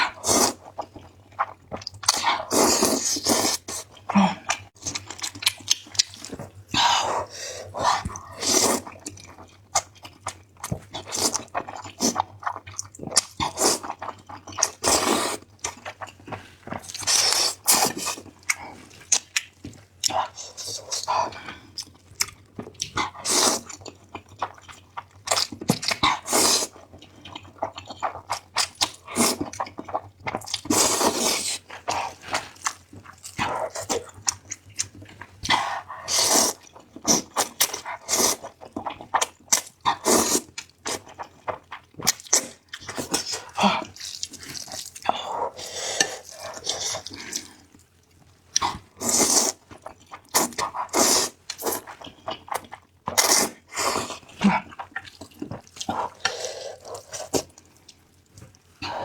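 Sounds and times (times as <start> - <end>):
slurping noodles and soup: 0.0 - 0.9, 2.2 - 4.0, 6.3 - 9.0, 13.4 - 18.8, 26.0 - 26.8, 30.6 - 32.6, 35.5 - 38.6, 39.9 - 41.2, 44.6 - 47.4, 48.6 - 49.7, 50.4 - 52.1, 53.1 - 54.9, 55.5 - 57.5
chewing: 7.8 - 59.0.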